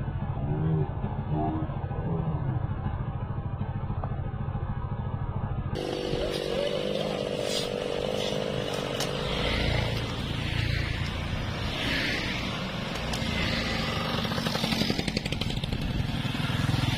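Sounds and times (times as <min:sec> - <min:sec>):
chainsaw engine running: 0:05.8 - 0:16.9.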